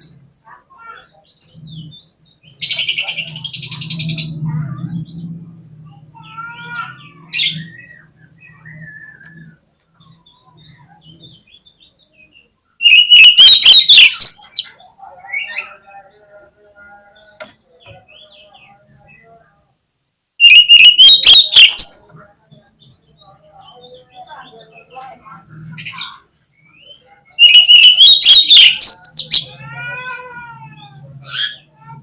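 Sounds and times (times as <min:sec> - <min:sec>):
magpie-robin song: 0:06.2 - 0:16.4, 0:20.4 - 0:32.0.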